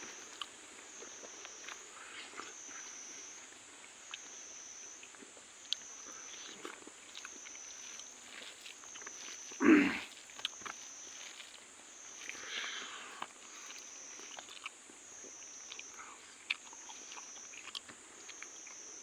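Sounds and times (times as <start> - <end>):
person chewing food: 5.7 - 18.8.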